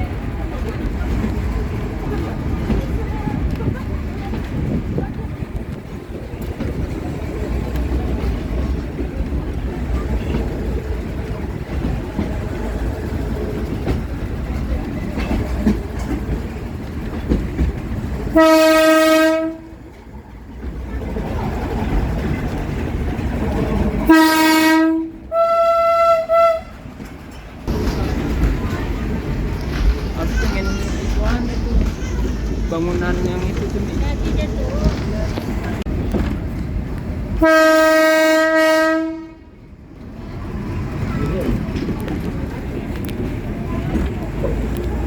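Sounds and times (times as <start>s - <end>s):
train rumbling: 0.0s - 45.0s
locomotive horn blasts: 18.3s - 19.7s, 24.1s - 26.8s, 37.4s - 39.5s.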